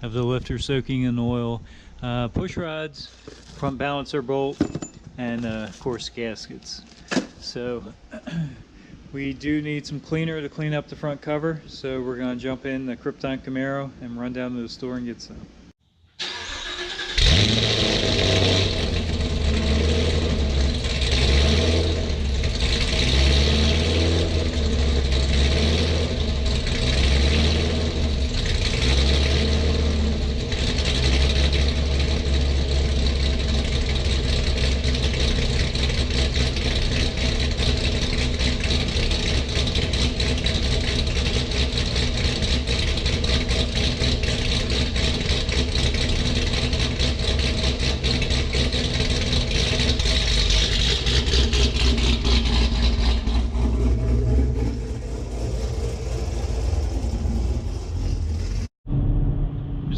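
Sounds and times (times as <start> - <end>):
car engine idling unevenly: 16.3 - 58.7.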